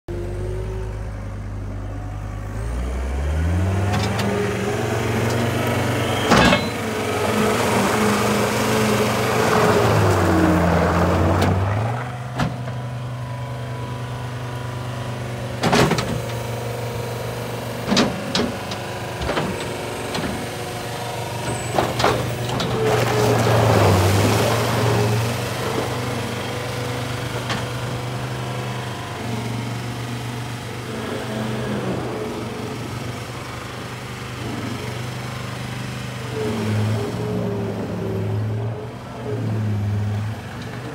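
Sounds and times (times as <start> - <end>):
loader diesel engine running: 0.1 - 40.9
sharp clanks: 6.2 - 6.8.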